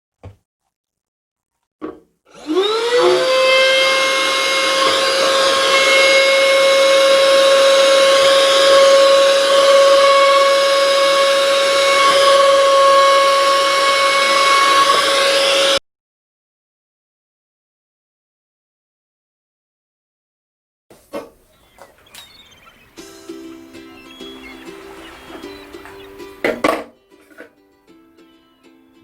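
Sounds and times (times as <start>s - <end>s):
vacuum cleaner motor whine: 2.3s - 15.8s.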